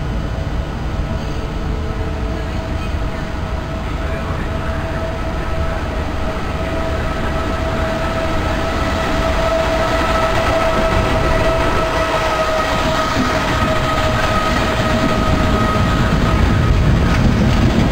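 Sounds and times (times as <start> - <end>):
electric train rumble: 0.0 - 17.9
train high whine: 0.0 - 17.9.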